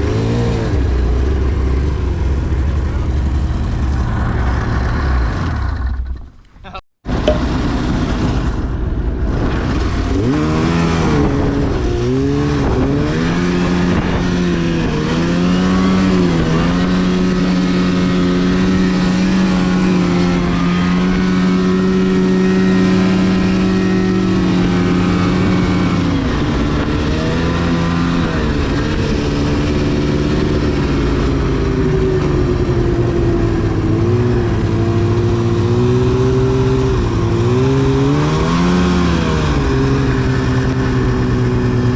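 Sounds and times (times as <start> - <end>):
snowmobile engine revving: 9.3 - 41.9.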